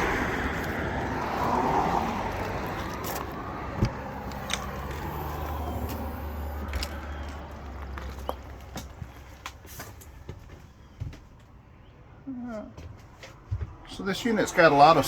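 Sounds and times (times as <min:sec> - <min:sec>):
vehicle engine humming: 0:00.0 - 0:10.7.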